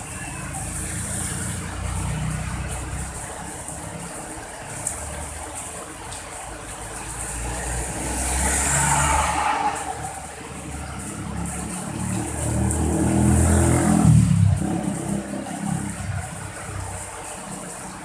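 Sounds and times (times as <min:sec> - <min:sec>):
vehicle passing with tyre hiss: 0:00.0 - 0:05.4, 0:06.9 - 0:18.0
steady rain: 0:00.0 - 0:18.0.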